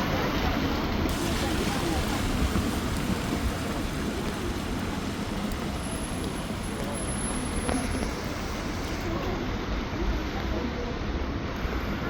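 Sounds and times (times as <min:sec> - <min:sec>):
rain on wet road: 0:00.7 - 0:09.8
vehicle engines rumbling: 0:01.1 - 0:10.3.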